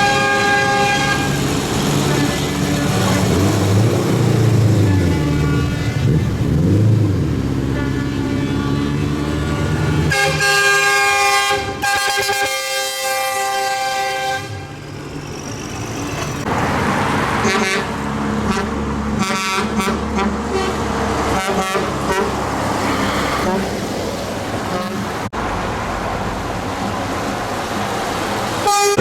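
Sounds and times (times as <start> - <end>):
horn blasts and toots: 0.0 - 1.5, 4.8 - 6.4, 7.9 - 14.8, 17.4 - 23.8, 24.7 - 25.3, 28.6 - 29.0
tractor engines running: 0.0 - 11.0, 14.6 - 29.0.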